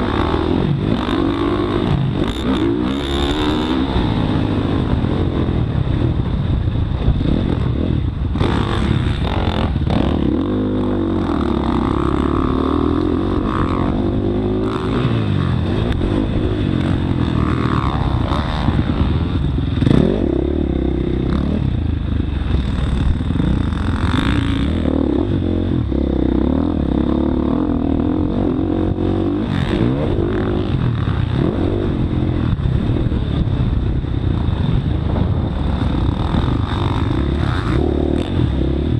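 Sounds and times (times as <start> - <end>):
motocross bike engine revving: 0.0 - 6.3, 7.0 - 38.9.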